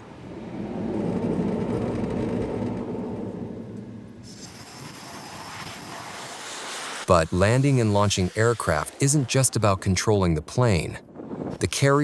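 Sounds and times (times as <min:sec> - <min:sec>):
high hiss: 0:06.6 - 0:09.8.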